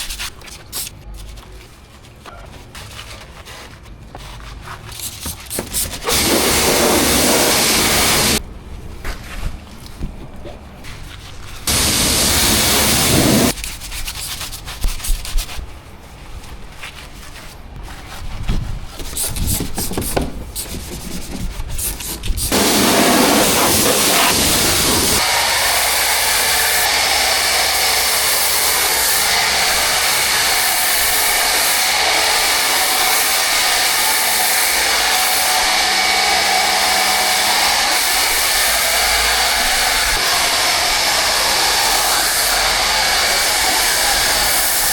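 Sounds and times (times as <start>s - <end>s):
car wash equipment rushing: 5.8s - 8.4s, 11.7s - 13.6s, 22.5s - 44.9s
rubbing and scraping against car: 10.6s - 25.2s.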